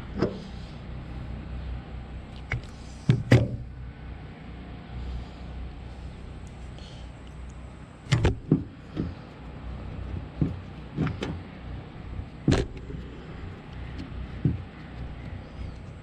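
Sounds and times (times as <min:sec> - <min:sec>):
low hum: 0:00.0 - 0:16.0
knocks and clicks of metal parts: 0:08.1 - 0:09.2.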